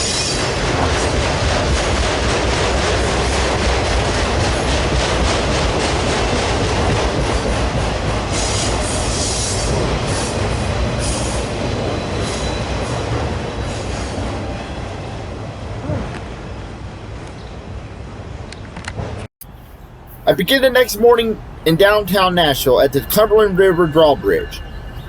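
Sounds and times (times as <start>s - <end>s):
train wheels rumbling on rails: 0.0s - 14.7s, 18.6s - 25.0s
high wheel squeals: 8.4s - 14.8s, 21.4s - 25.0s.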